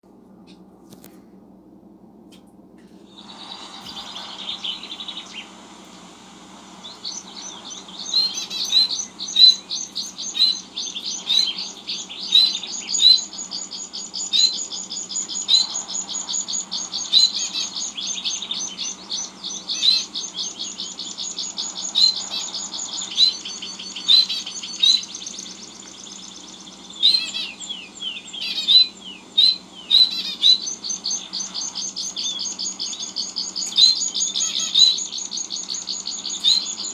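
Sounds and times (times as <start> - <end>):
small birds twittering: 3.0 - 36.9
sharp loud bird chirps: 3.1 - 36.9.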